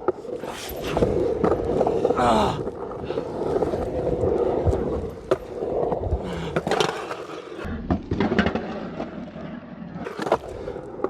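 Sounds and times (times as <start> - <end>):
skateboard wheels rumbling on concrete: 0.0 - 11.0
skateboard clacks: 3.1 - 11.0.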